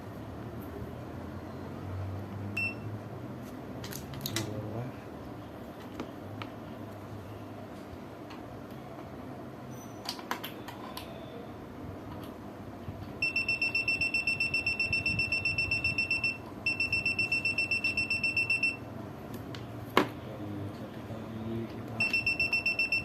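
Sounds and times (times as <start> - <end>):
multimeter rapid high beeping: 13.2 - 18.9, 22.0 - 23.0.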